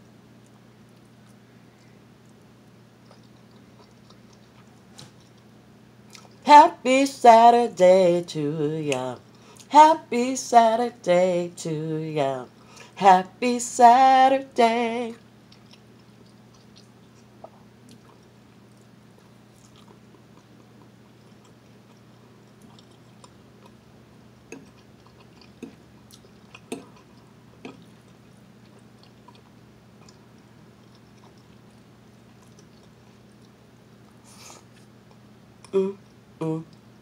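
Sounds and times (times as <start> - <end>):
person chewing: 0.4 - 5.5, 6.1 - 6.4, 15.2 - 23.8, 24.4 - 36.8.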